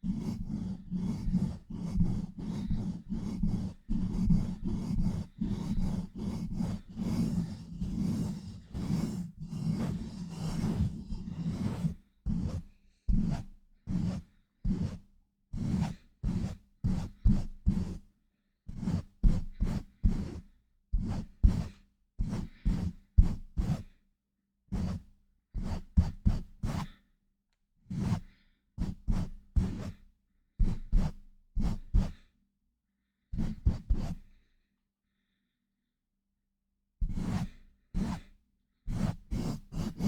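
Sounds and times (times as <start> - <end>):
hands rubbing on a microphone: 0.6 - 12.7.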